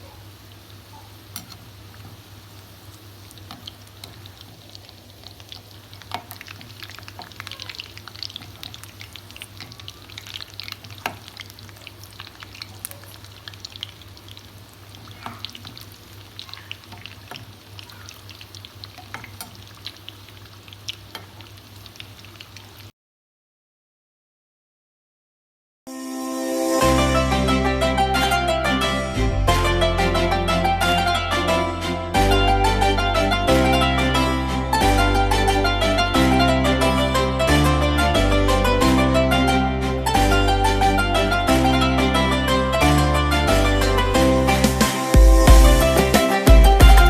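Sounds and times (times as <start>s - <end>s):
food sizzling in hot oil: 0.0s - 22.9s.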